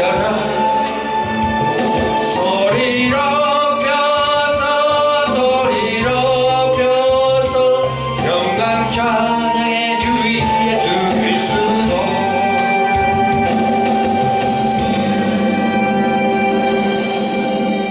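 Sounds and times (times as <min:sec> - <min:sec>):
person singing gospel song: 0:00.0 - 0:01.0, 0:02.2 - 0:13.1
instrumental accompaniment: 0:00.0 - 0:17.9.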